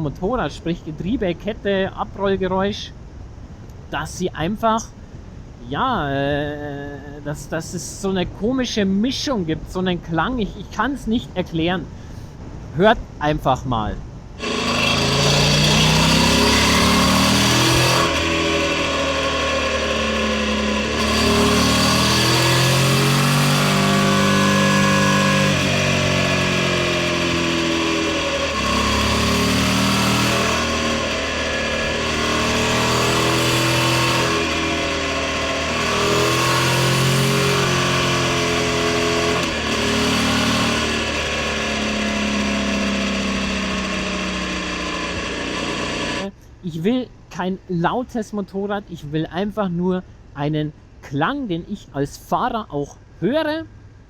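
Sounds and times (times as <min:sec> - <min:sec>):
chain and tyre noise: 0:14.4 - 0:46.3
motorcycle engine: 0:14.4 - 0:46.4.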